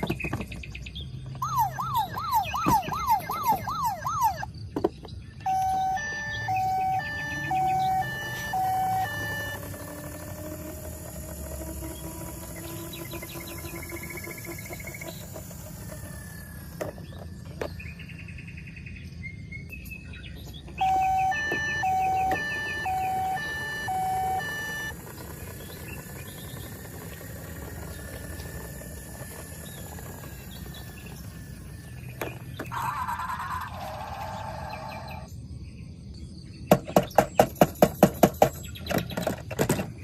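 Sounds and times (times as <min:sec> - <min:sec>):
short electronic chirps and tones: 0:01.4 - 0:04.5, 0:05.5 - 0:09.7, 0:20.8 - 0:24.9
two-tone toy beeping: 0:01.4 - 0:04.6, 0:05.4 - 0:17.8, 0:20.6 - 0:35.3.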